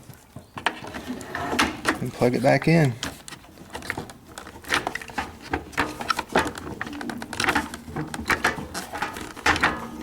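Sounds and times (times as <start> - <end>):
plastic parts clicking and rattling: 2.7 - 10.0.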